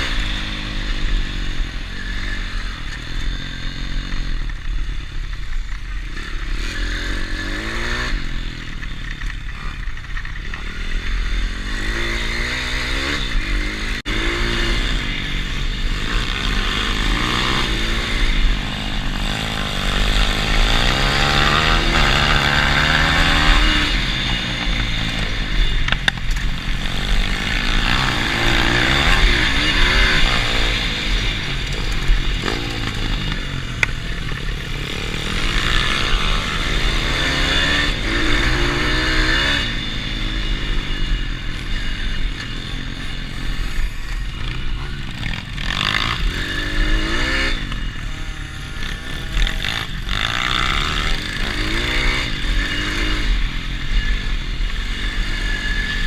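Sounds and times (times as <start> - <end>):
pit bike engine revving: 0.0 - 56.0.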